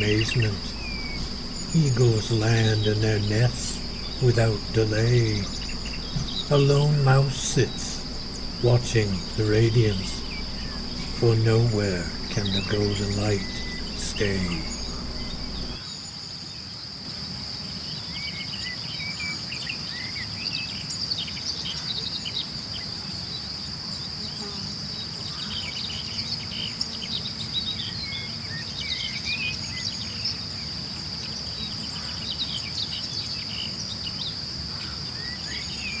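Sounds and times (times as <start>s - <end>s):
bird chirps and calls: 0.0s - 15.8s
low steady rumble: 0.0s - 15.8s
crickets and cicadas trilling: 0.0s - 36.0s.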